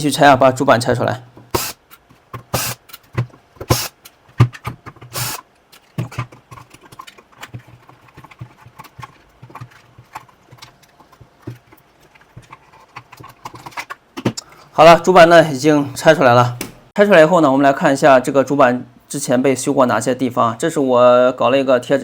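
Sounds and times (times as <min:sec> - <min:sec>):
metal and plastic parts clicking: 0:01.9 - 0:14.5.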